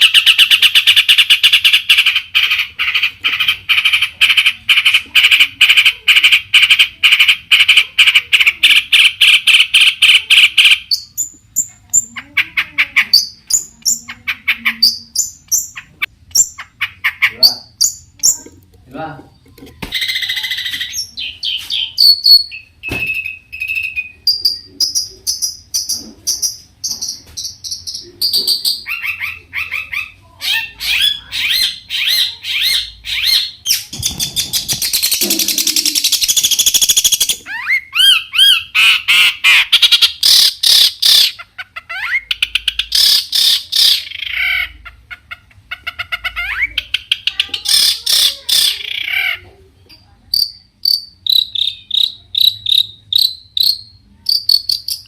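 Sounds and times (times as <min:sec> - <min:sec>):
harsh scratchy bird chatter: 0:00.0 - 0:18.5, 0:23.6 - 0:49.5, 0:50.3 - 0:55.0
bird singing chirps and trills: 0:08.4 - 0:18.5, 0:19.3 - 0:44.8.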